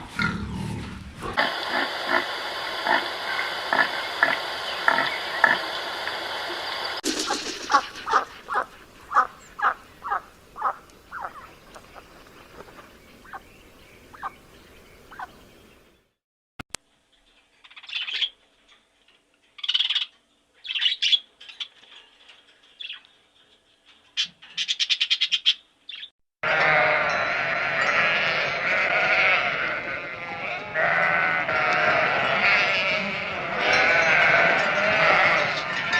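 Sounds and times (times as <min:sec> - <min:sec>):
flock of sheep bleating: 0:26.4 - 0:35.9.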